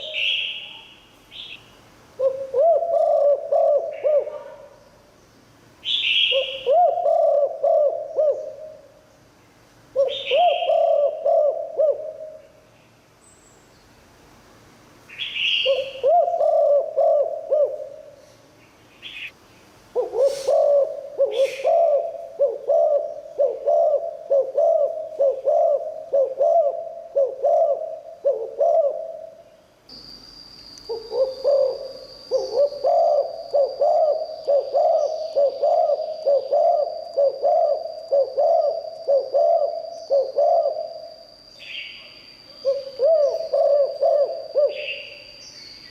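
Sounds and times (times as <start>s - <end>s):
dove cooing: 0.0s - 0.6s, 2.2s - 4.8s, 5.9s - 9.0s, 9.9s - 12.6s, 15.5s - 18.3s, 20.0s - 29.5s, 30.9s - 41.2s, 42.6s - 45.2s
small bird chirping: 18.2s - 19.7s, 29.9s - 45.9s
thin steady high tone: 28.8s - 45.9s.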